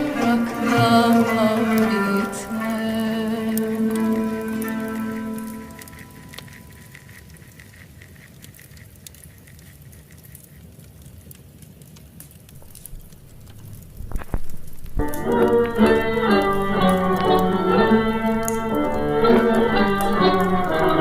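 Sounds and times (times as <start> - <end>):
instrumental music: 0.0 - 6.8, 15.0 - 21.0
fireplace crackling: 0.0 - 21.0
sharp fire snaps: 0.1 - 21.0.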